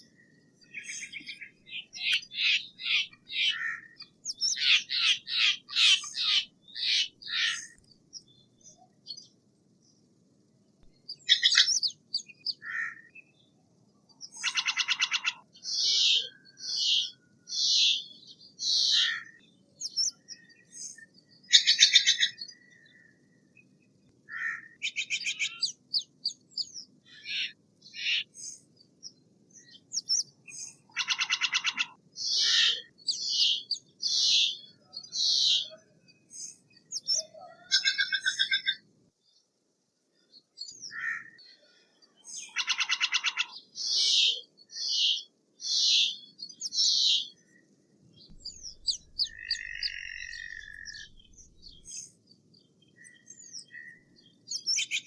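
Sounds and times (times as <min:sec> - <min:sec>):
raspy rattling bird calls: 0:00.6 - 0:07.8, 0:14.3 - 0:17.1, 0:30.0 - 0:35.6, 0:37.7 - 0:38.8, 0:42.5 - 0:43.6, 0:48.4 - 0:52.0.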